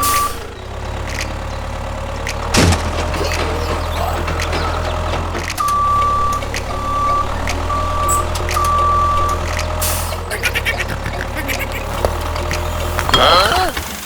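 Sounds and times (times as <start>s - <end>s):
electronic beeps: 5.6s - 9.9s.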